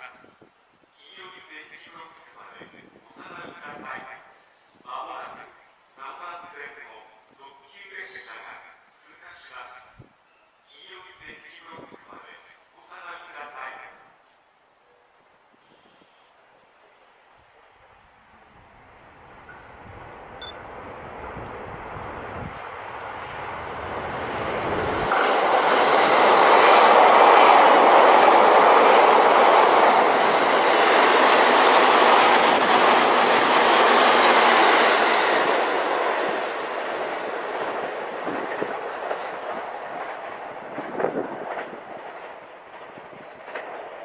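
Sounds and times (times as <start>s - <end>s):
train wheels on track: 19.1s - 44.0s.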